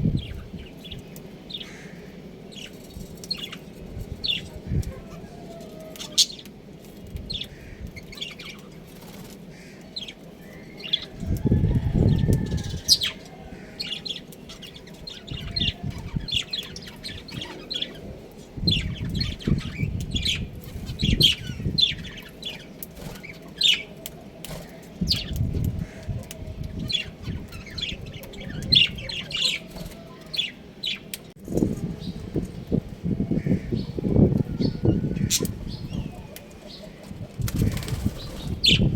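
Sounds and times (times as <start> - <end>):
low rustling of wings: 37.0 - 38.9.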